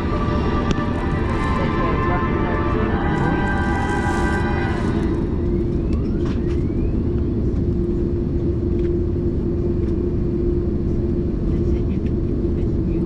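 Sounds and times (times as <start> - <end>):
safety video music: 0.0 - 6.6
airplane cabin rumble and hum: 0.0 - 13.0.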